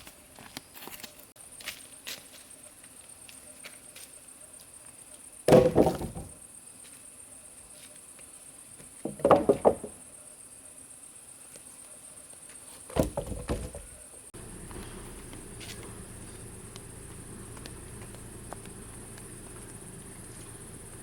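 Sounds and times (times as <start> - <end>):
heavy thumps: 13.0 - 21.0
high-pitched hum: 14.4 - 21.0.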